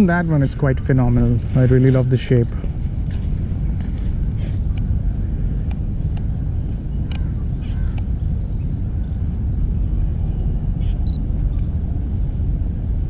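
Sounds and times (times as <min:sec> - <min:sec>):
low outdoor rumble: 0:00.0 - 0:13.0
faint clicks: 0:07.0 - 0:07.3, 0:07.9 - 0:08.1.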